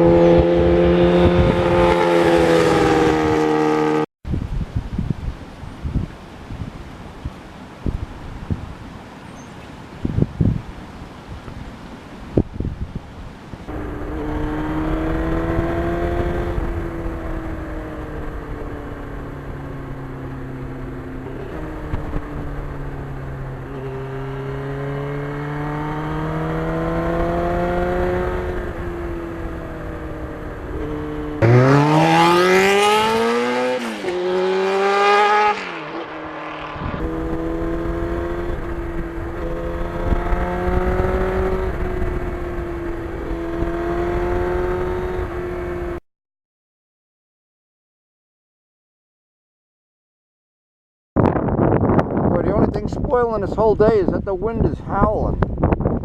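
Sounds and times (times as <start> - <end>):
motorcycle engine revving: 0.0 - 4.1, 13.7 - 46.0
wind rumble: 0.0 - 46.0, 51.2 - 56.0.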